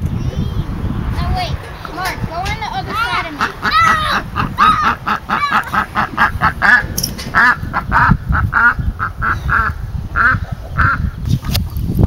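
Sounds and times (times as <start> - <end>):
ducks quacking: 1.7 - 11.2.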